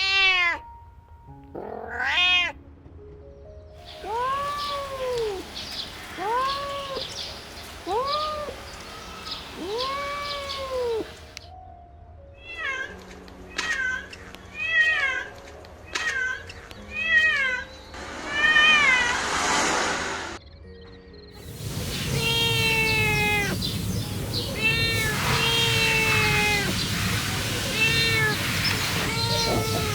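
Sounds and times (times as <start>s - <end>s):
cat meowing: 0.0s - 0.7s, 1.6s - 2.6s, 3.9s - 11.4s, 12.4s - 15.3s, 21.4s - 29.9s.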